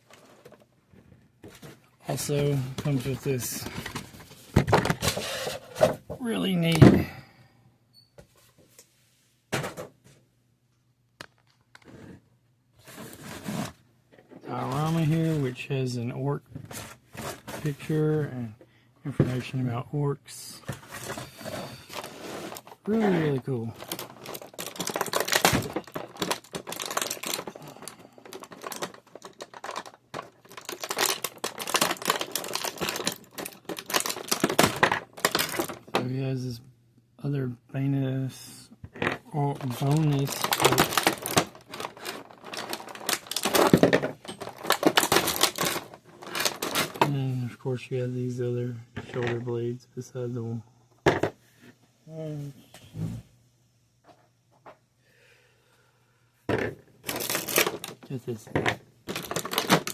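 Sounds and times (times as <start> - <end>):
packaging rustling: 20.7 - 35.9, 39.5 - 47.1, 57.0 - 58.4, 59.1 - 59.9
packaging knocks and clicks: 20.7 - 36.0, 39.0 - 47.1, 56.5 - 59.9.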